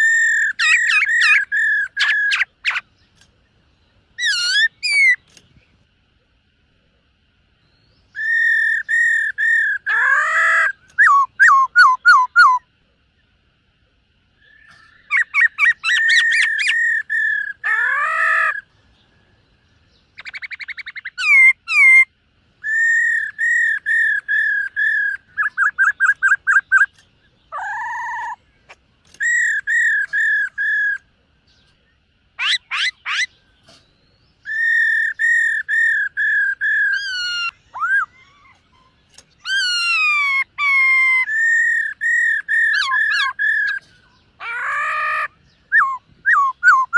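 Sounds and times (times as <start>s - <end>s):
bird singing whistled phrases: 7.7s - 12.7s, 20.2s - 28.4s, 29.1s - 31.0s, 34.4s - 38.5s, 39.4s - 43.9s, 44.5s - 46.9s.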